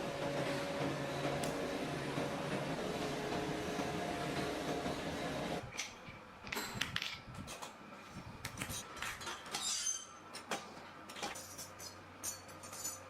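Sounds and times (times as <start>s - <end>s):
machine motor humming: 0.0s - 5.6s
metal parts clinking: 11.2s - 13.0s.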